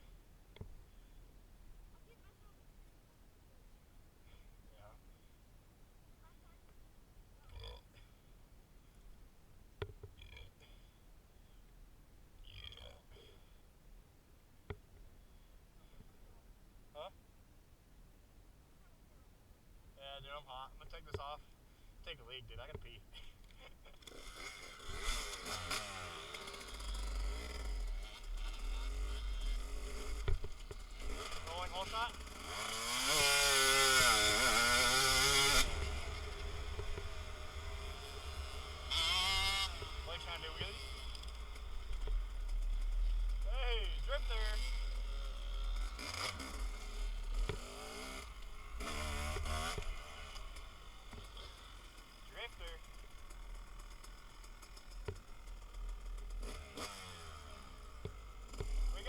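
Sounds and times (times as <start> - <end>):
dirt bike engines revving: 20.0 - 59.0.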